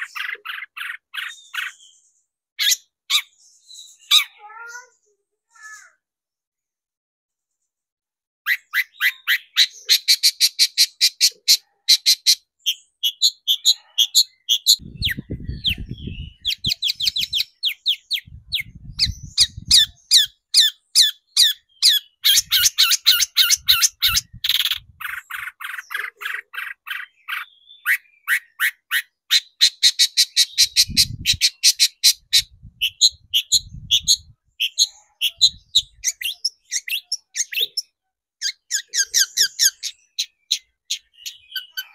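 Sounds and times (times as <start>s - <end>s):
bird harsh chattering song: 0.0s - 6.0s, 8.4s - 41.9s.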